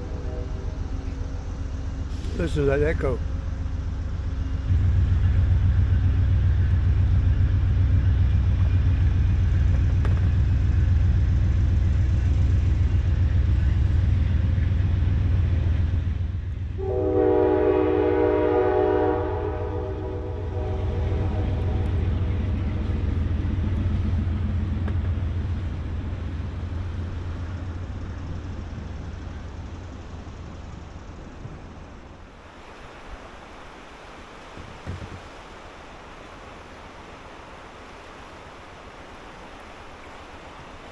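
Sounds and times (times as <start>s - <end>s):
train horn blast: 0.0s - 1.3s, 16.8s - 23.0s
diesel locomotive engine rumble: 0.0s - 40.9s.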